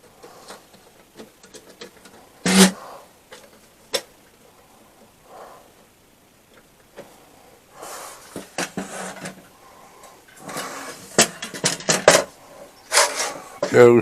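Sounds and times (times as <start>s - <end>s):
metal part scraping and rubbing: 2.4s - 2.8s, 10.4s - 13.8s.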